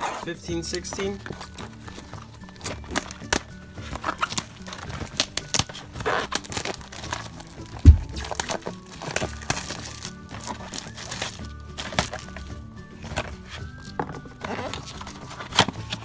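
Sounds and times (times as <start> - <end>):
plastic wrapping torn and crinkled: 1.2 - 16.0
loud thud: 7.8 - 8.4.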